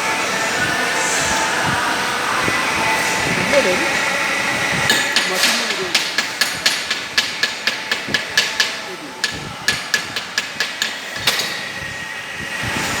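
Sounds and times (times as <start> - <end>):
hammer striking metal: 4.9 - 11.8.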